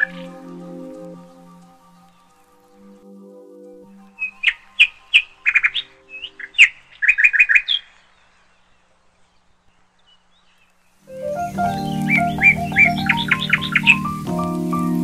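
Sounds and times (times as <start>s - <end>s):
bird chirping sharp calls: 4.1s - 14.3s.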